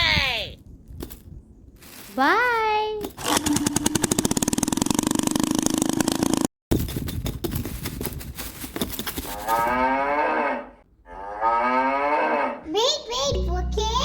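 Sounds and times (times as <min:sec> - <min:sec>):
rapid mechanical clatter: 0:03.2 - 0:07.4
cow mooing: 0:09.5 - 0:12.6.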